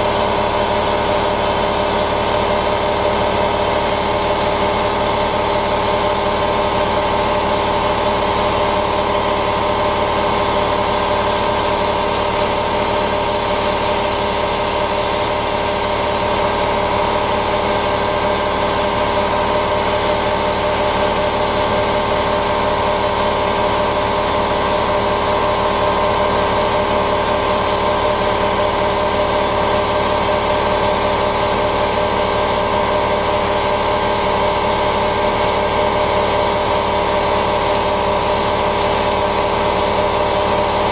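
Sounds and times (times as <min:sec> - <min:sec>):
air compressor humming: 0:00.0 - 0:40.9
paint spray gun hissing: 0:00.0 - 0:40.9.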